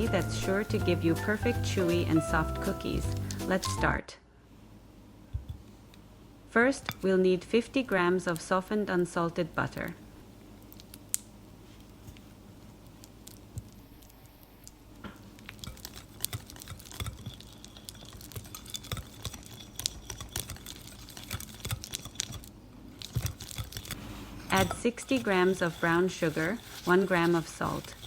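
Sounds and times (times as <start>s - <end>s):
utensil clicking in mixing bowl: 15.5s - 28.0s.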